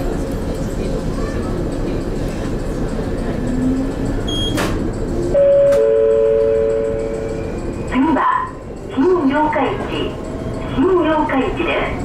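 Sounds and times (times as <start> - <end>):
train running and rail noise: 0.0 - 12.0
two-note tone: 5.4 - 7.4.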